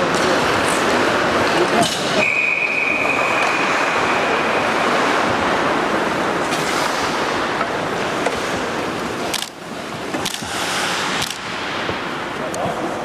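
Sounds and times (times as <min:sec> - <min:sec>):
high whistle tone: 0:02.2 - 0:04.5.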